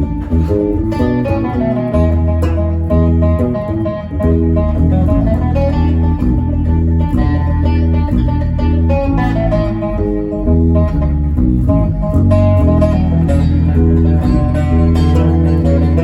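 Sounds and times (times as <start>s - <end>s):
guitar notes ringing: 0.0s - 16.0s
steady bass line: 0.0s - 16.0s.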